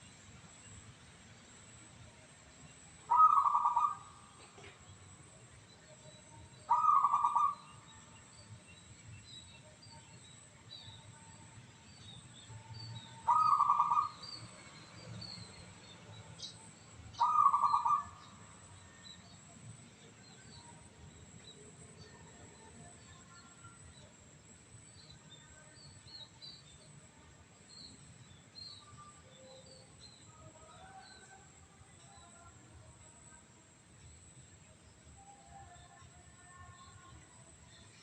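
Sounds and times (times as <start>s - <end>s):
faint high bird chirps: 2.6s - 38.0s
dove cooing: 3.1s - 4.8s, 6.7s - 7.6s, 13.3s - 14.2s, 17.2s - 18.2s.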